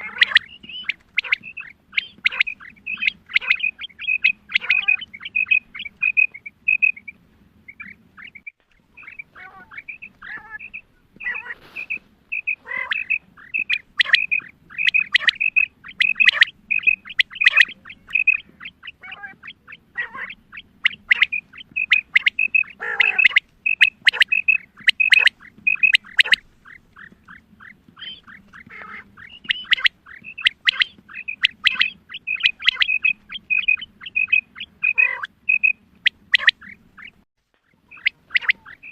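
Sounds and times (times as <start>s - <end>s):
quail calling: 0.0s - 38.9s.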